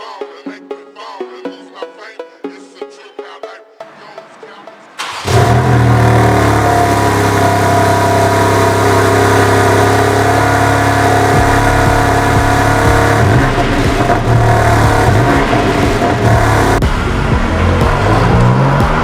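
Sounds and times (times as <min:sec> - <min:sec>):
car engine revving: 0:03.9 - 0:19.0.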